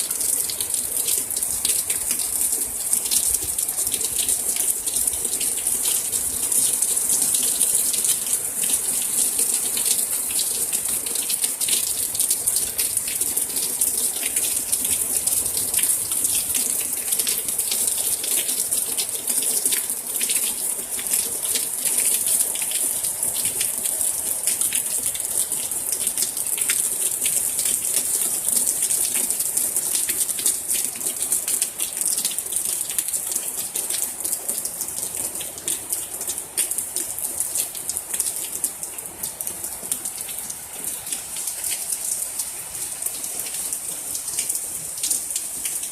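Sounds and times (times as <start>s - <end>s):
heavy rain downpour: 0.0s - 45.9s.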